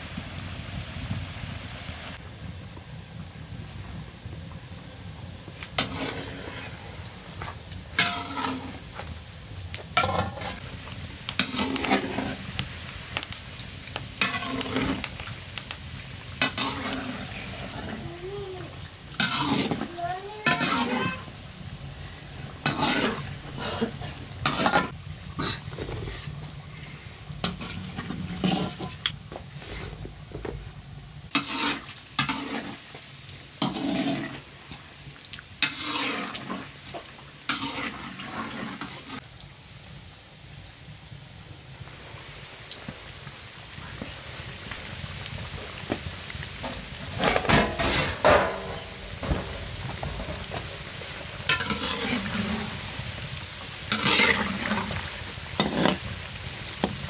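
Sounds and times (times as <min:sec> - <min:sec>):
dough sizzling in oil: 0:00.0 - 0:57.0
metal utensil scraping wok: 0:05.7 - 0:30.1, 0:31.3 - 0:34.8, 0:35.6 - 0:39.2, 0:46.5 - 0:57.0.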